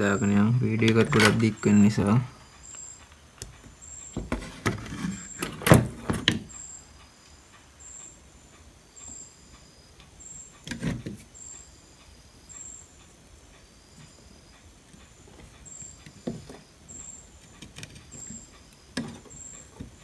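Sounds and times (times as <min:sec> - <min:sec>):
tools clicking and rattling: 0:00.8 - 0:02.2.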